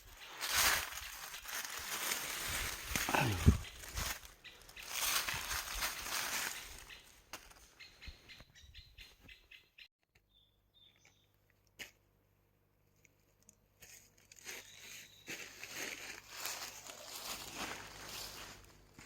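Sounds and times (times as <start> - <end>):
leaves rustling underfoot: 0.0 - 8.0, 13.8 - 19.0
twigs clicking and snapping: 0.2 - 7.7.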